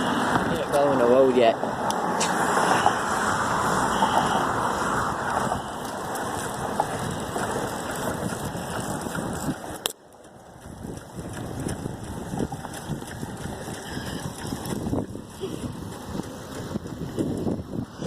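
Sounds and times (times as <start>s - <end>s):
road traffic rushing: 0.0s - 18.0s.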